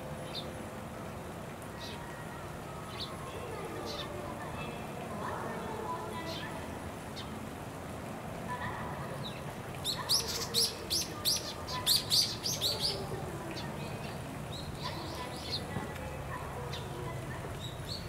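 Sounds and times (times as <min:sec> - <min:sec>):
bird chirping: 0:09.2 - 0:15.7.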